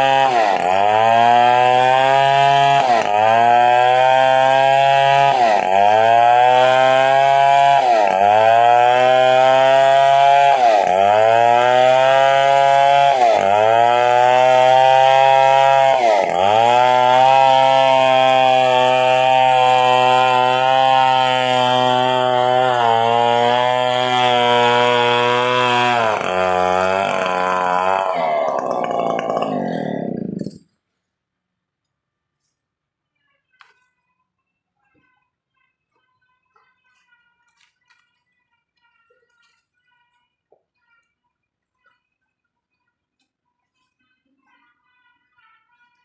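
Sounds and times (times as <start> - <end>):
chainsaw cutting through trunk: 0.0 - 30.8.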